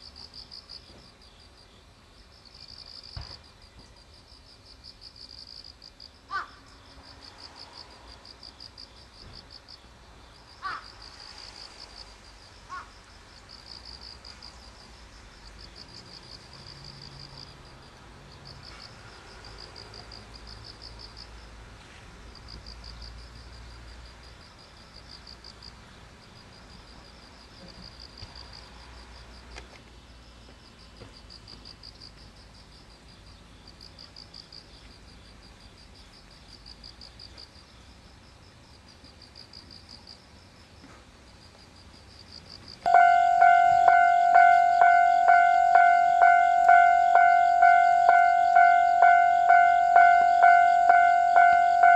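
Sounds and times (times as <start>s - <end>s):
insects trilling: 0.0s - 21.5s, 41.4s - 51.9s.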